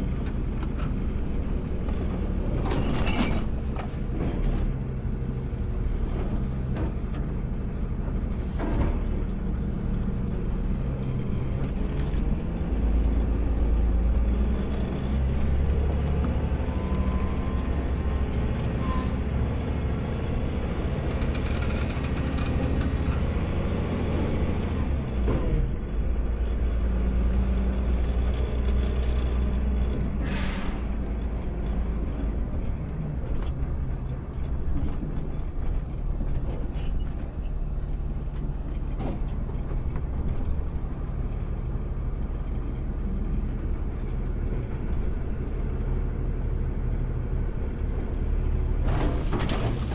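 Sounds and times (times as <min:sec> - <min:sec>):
garbage truck engine rumbling: 0:00.0 - 0:49.9
air brake hiss: 0:30.2 - 0:30.9.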